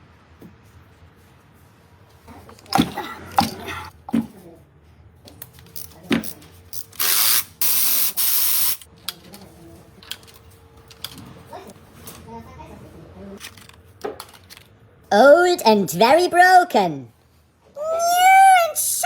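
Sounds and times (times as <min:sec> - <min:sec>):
spray hissing in bursts: 0:07.0 - 0:08.8.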